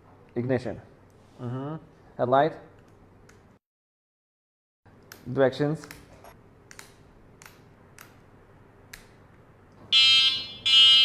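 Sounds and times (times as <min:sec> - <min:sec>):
buzzy electric horn beeps: 0:10.0 - 0:11.0.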